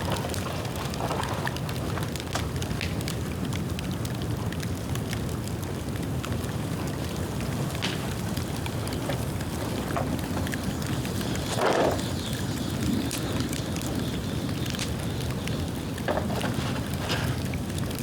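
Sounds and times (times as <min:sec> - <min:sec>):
bonfire crackling and snapping: 0:00.0 - 0:18.0.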